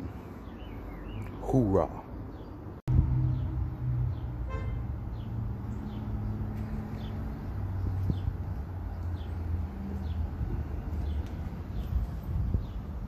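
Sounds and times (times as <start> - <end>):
small birds chirping: 0.0 - 4.4, 5.0 - 13.0
vehicle engine humming: 2.8 - 13.0.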